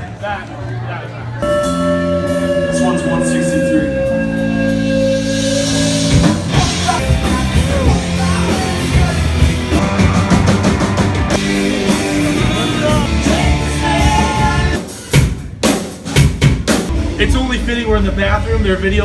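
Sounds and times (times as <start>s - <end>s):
live rock band with singer: 1.4s - 15.3s.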